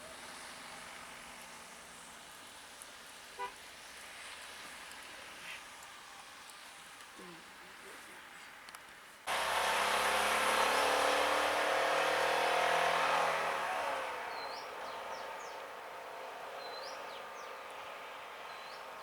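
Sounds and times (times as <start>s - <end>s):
vehicle engine running: 9.3s - 16.2s.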